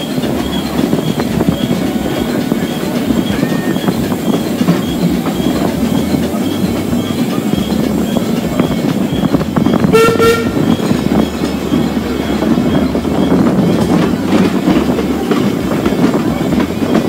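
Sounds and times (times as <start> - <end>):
train rumbling on track: 0.0 - 17.0
locomotive horn toot: 9.2 - 11.0.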